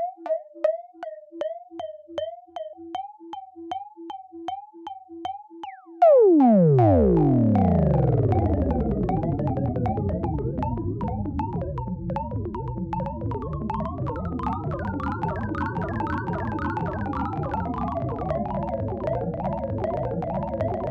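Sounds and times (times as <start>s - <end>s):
descending electronic tones: 6.1s - 13.1s.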